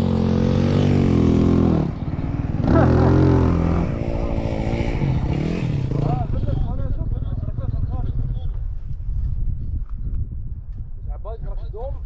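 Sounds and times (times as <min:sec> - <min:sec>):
dirt bike engine revving: 0:00.0 - 0:06.7.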